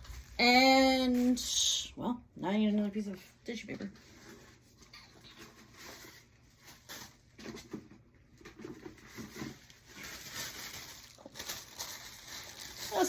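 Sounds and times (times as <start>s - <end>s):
tissue paper rustling: 3.8s - 7.8s, 8.5s - 13.0s.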